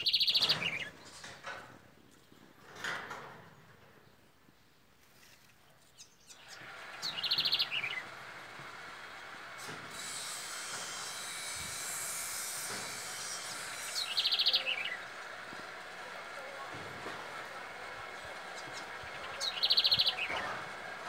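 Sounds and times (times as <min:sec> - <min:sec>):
songbird trilling call: 0:00.0 - 0:00.9, 0:06.0 - 0:08.0, 0:13.9 - 0:15.0, 0:18.5 - 0:20.4.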